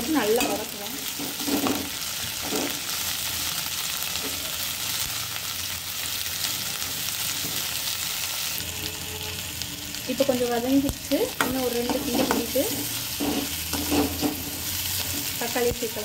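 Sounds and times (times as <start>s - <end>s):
leaves sizzling in hot oil: 0.0s - 16.0s
steel spoon stirring: 11.5s - 15.2s.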